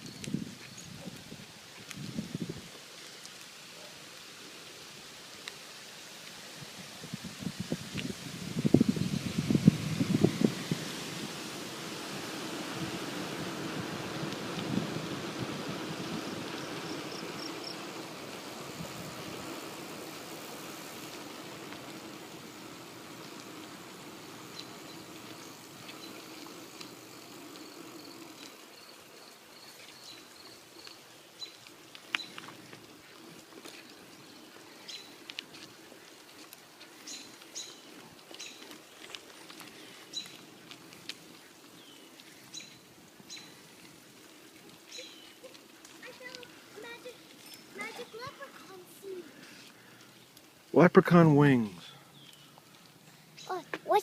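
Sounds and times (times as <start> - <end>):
wind and bicycle rolling noise: 0.0 - 54.0
small birds chirping: 20.4 - 50.6, 51.8 - 54.0.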